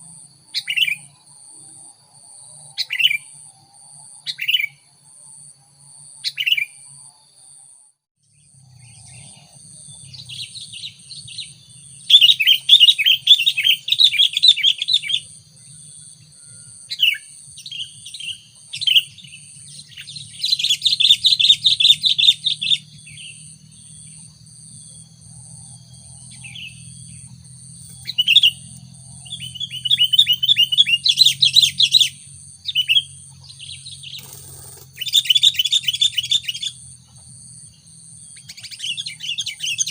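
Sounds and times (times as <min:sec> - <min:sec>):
bulbul chattering calls: 0:08.8 - 0:15.9, 0:16.9 - 0:24.3, 0:26.3 - 0:37.3, 0:38.3 - 0:39.9.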